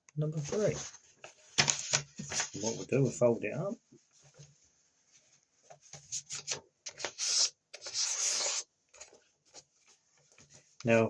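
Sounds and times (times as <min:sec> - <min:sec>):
paper being folded: 0:00.4 - 0:02.9, 0:05.2 - 0:10.8.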